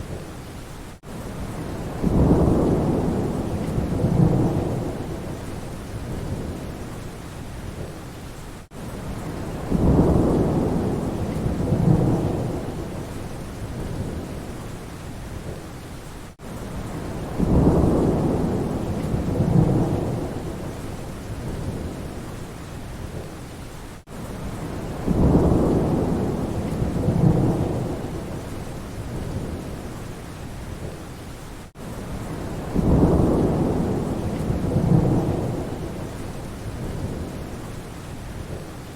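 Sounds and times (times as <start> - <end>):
steady rain: 0.0 - 38.9
thunder rumbling: 1.4 - 6.8, 9.1 - 14.6, 16.8 - 22.2, 24.4 - 29.9, 32.1 - 37.6.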